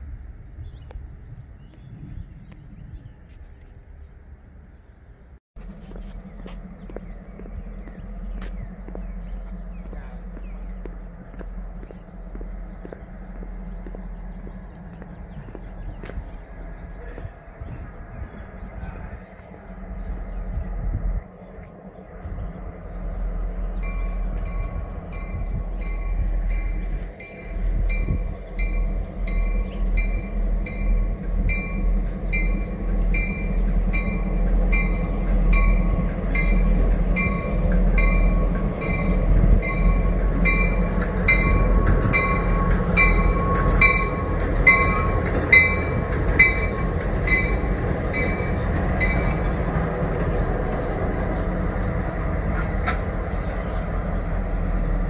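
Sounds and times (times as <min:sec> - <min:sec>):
train rumbling past: 0:00.0 - 0:55.0
wheels clicking over rail joints: 0:30.7 - 0:51.6.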